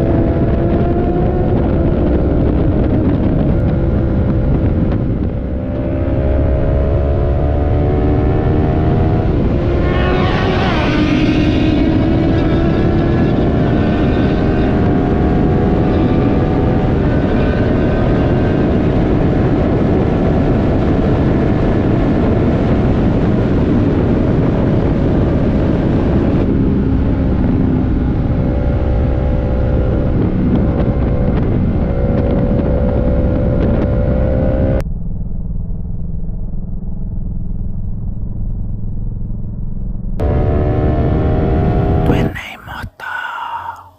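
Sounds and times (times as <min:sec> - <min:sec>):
wind rush on microphone: 0:00.0 - 0:34.8.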